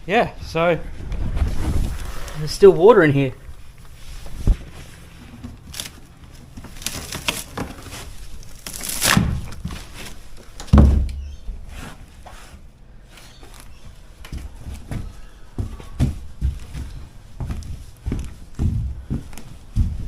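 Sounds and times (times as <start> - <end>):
heavy low thump: 10.7 - 11.2.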